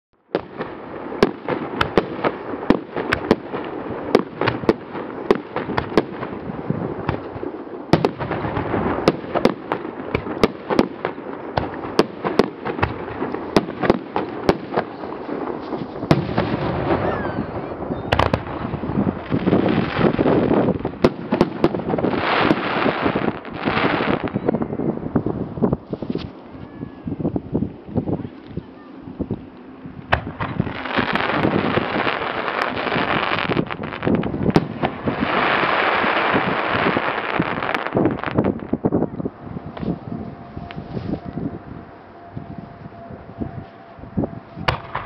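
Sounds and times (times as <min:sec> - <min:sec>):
fireworks sharp bangs: 0:00.3 - 0:26.9, 0:30.0 - 0:38.8, 0:44.6 - 0:45.0.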